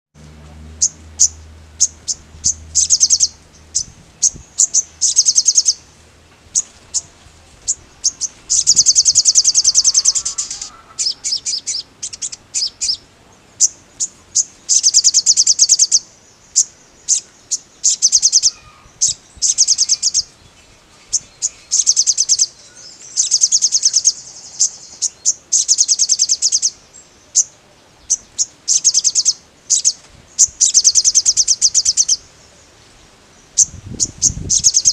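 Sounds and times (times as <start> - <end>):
songbird trilling: 0.7 - 32.7, 33.3 - 34.9.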